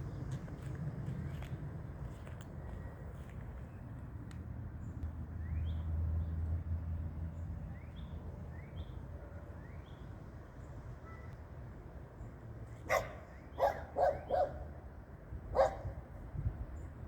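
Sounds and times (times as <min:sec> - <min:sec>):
dog barking: 0:12.9 - 0:14.6, 0:15.5 - 0:16.0.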